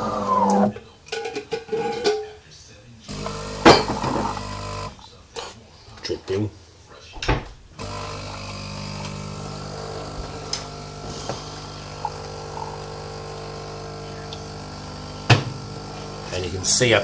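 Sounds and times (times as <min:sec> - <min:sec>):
coffee machine pump humming: 0:00.0 - 0:00.7, 0:03.1 - 0:05.0, 0:07.8 - 0:17.0.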